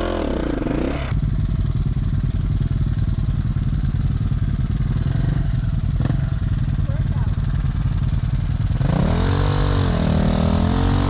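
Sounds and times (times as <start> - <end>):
dirt bike engine revving: 0.0 - 1.2, 8.8 - 11.0.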